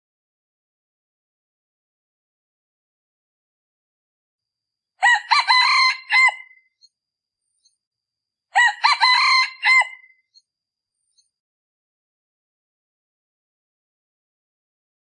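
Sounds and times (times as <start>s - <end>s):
rooster crowing: 5.0s - 6.6s, 8.5s - 10.1s.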